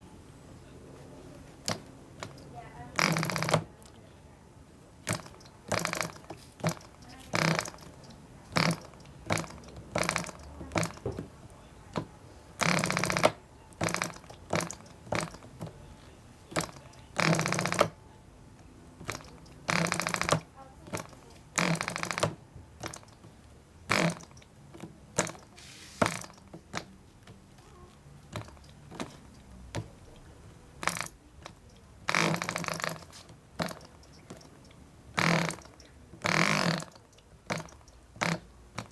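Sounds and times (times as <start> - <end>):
model engine popping bursts: 1.6 - 3.7, 5.0 - 11.2, 12.6 - 15.6, 16.5 - 18.0, 19.0 - 23.2, 23.9 - 24.4, 25.2 - 26.9, 30.8 - 31.2, 32.0 - 38.9.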